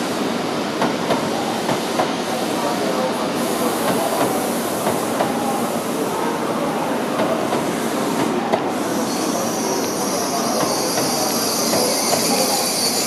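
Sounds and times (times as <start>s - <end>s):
train rolling over tracks: 0.0s - 13.0s
high-pitched wheel squeal: 8.9s - 13.0s.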